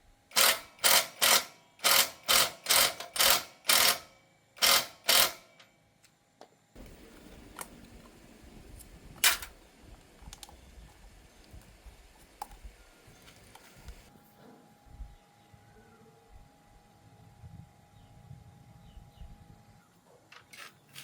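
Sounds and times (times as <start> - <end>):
small hard parts clicking: 0.3 - 5.7.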